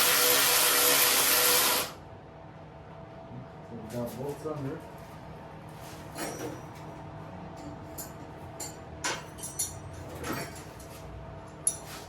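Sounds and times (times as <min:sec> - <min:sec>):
hand tools clinking on metal: 0:07.6 - 0:12.0.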